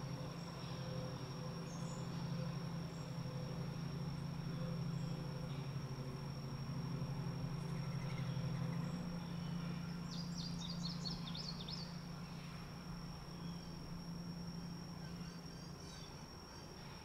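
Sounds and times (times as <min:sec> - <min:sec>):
steady low hum: 0:00.0 - 0:17.0
bird chirping: 0:07.6 - 0:13.9.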